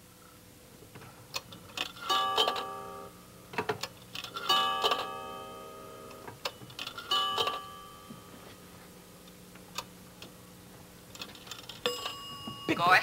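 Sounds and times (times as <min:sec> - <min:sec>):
coin clicks in pay phone: 0:01.8 - 0:02.8, 0:04.2 - 0:05.2, 0:06.4 - 0:07.7
bell-like chime: 0:11.8 - 0:13.0.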